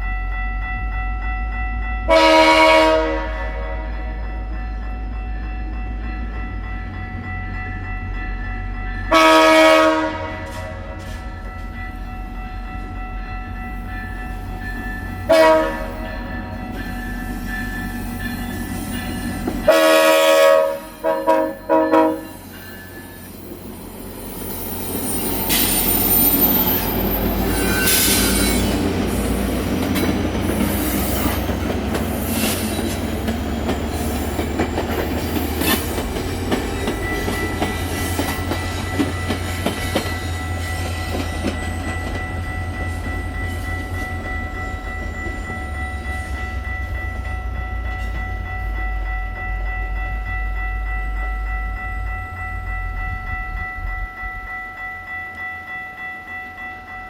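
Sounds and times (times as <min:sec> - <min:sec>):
train rumbling past: 0:00.0 - 0:57.0
locomotive horn blasts: 0:02.1 - 0:04.2, 0:09.1 - 0:11.1, 0:15.3 - 0:16.3, 0:19.7 - 0:22.4
wheels clattering on rails: 0:13.6 - 0:20.4, 0:21.0 - 0:49.3.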